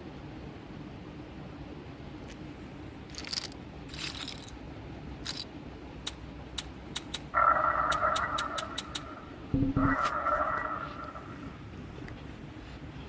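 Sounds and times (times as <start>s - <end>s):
steady low hum: 0.0s - 13.0s
sharp clicks: 6.0s - 7.3s, 7.9s - 9.2s.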